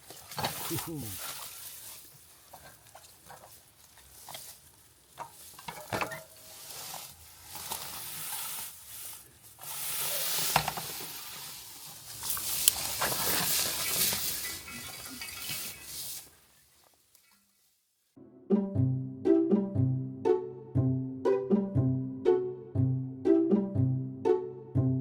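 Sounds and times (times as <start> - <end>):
fire popping: 0.0 - 17.7
campfire crackling and hissing: 0.0 - 17.9.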